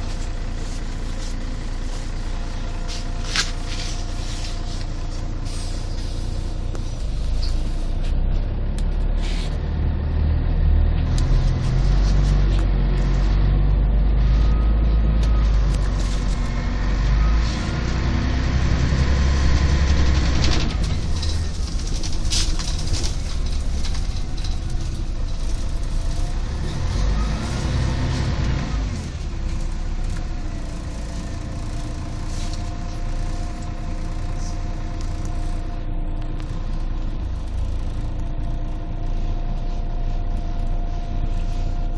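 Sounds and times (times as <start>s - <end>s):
bus engine drone and whine: 0.0s - 41.9s.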